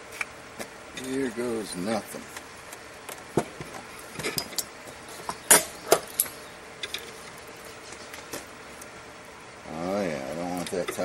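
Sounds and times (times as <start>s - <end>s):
steel parts clinking together: 5.3s - 7.1s.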